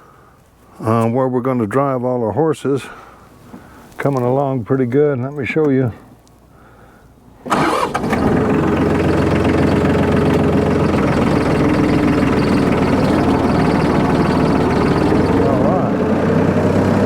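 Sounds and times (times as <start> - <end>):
vehicle engine starting and idling: 7.4 - 17.0.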